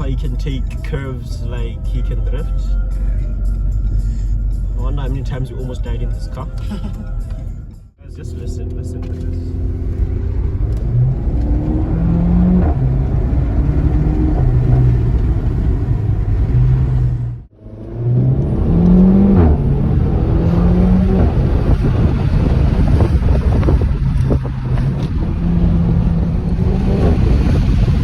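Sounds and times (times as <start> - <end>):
car engine revving hard: 8.2 - 28.0.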